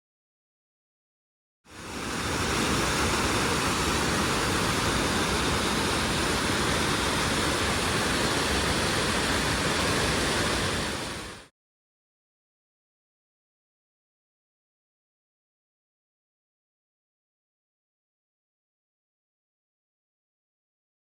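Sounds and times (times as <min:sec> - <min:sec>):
water rushing down rock: 0:01.7 - 0:11.5.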